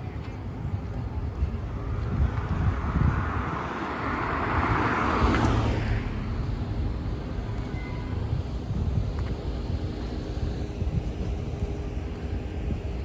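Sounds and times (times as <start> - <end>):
low traffic rumble: 0.0 - 13.0
vehicle driving past: 2.4 - 7.5.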